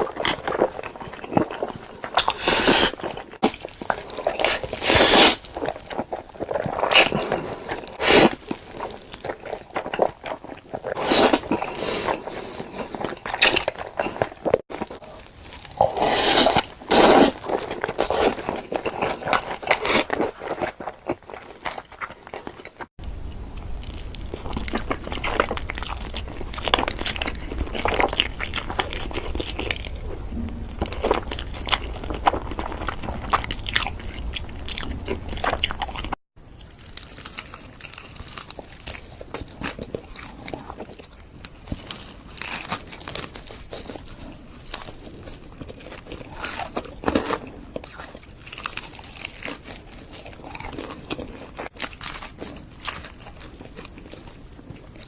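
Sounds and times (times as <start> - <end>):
crunchy bites and chewing: 0.0 - 55.0
low hum: 23.0 - 36.2.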